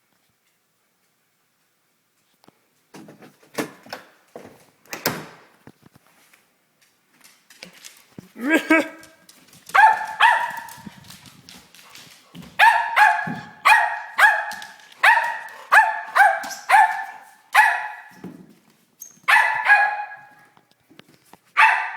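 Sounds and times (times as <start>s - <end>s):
dog barking high-pitched: 9.7s - 10.9s, 12.6s - 18.2s, 19.2s - 20.4s, 21.6s - 21.9s.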